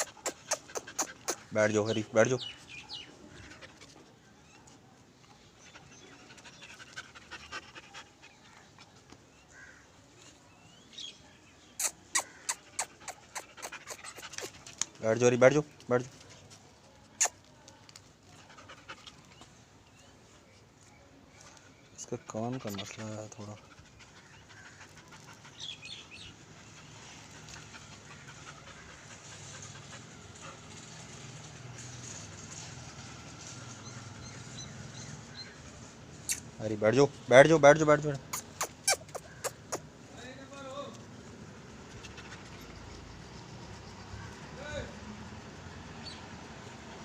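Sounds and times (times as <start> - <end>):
puppy high chirps: 0.0 - 1.5, 11.8 - 14.7, 17.2 - 17.5, 38.3 - 39.9
puppy panting: 0.0 - 9.5, 11.8 - 16.3, 17.1 - 20.5, 21.5 - 36.4, 38.2 - 40.0, 40.9 - 44.6.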